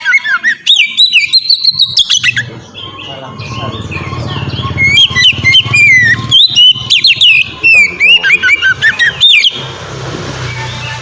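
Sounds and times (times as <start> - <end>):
bird singing whistled notes: 0.0 - 9.6.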